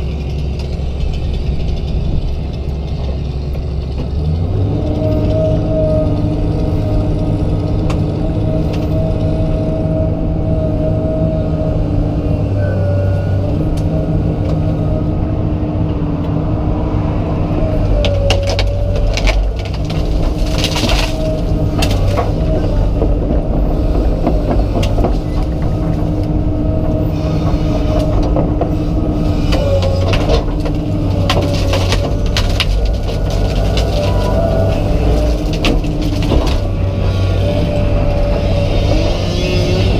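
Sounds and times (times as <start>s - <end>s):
excavator diesel engine running: 0.0s - 39.9s
wood cracking and snapping: 17.8s - 39.9s.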